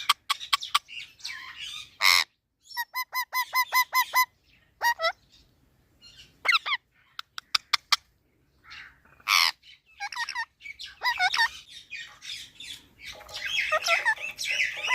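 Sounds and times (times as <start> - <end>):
parrots squawking and calling: 0.0 - 5.5, 6.1 - 14.9
parrot warbling calls: 1.3 - 5.2, 6.4 - 6.8, 8.7 - 11.6, 13.2 - 14.9.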